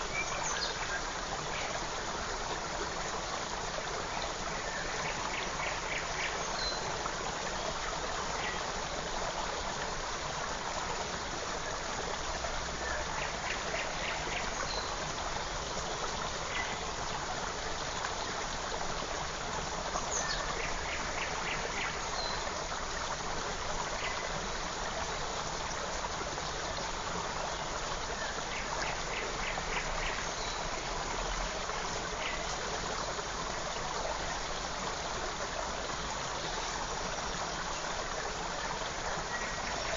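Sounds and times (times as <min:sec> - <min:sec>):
songbird singing: 0:00.0 - 0:01.7, 0:04.5 - 0:06.9, 0:12.8 - 0:15.0, 0:20.0 - 0:22.5, 0:28.2 - 0:31.4
stream running over stones: 0:00.0 - 0:39.9.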